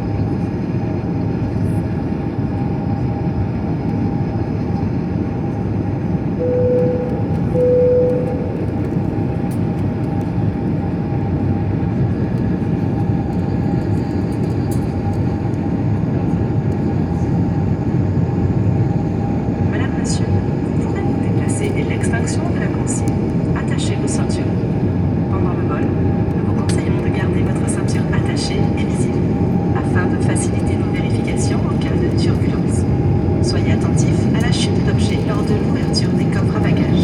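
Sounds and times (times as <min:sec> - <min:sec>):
airliner cabin engine noise: 0:00.0 - 0:37.0
two-tone cabin chime: 0:06.4 - 0:08.9.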